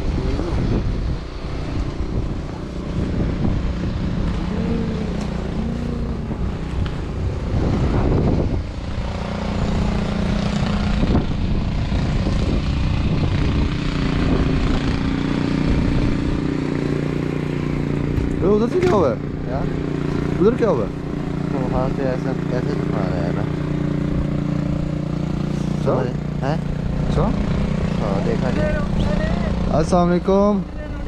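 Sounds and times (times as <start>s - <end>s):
engine humming: 0.0s - 31.0s.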